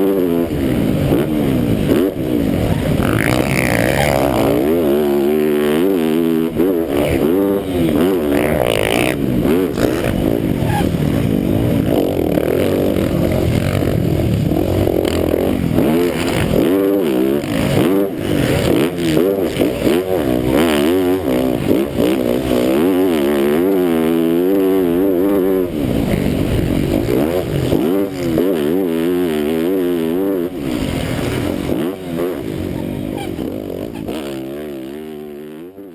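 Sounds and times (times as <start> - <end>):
motocross bike engine revving: 0.0 - 35.9.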